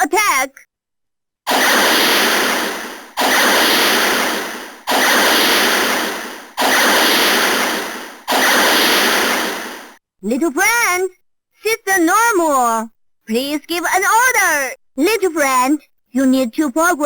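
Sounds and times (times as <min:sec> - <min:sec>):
toy robot harsh noise blast: 0:01.5 - 0:10.0.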